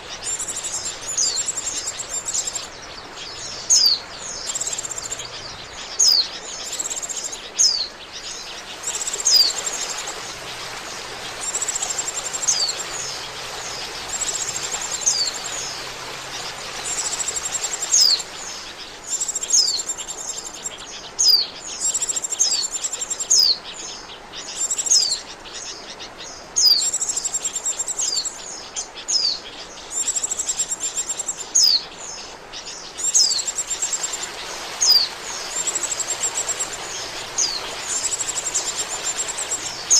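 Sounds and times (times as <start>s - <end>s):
steady hiss: 0.0s - 20.9s, 29.7s - 39.9s.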